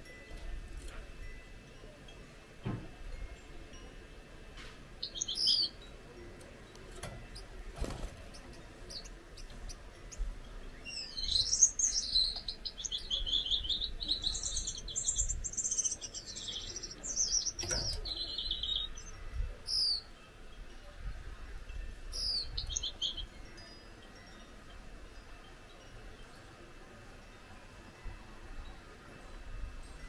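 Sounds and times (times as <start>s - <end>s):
finch singing buzzy song: 4.9s - 6.0s, 6.6s - 20.2s, 22.0s - 24.8s.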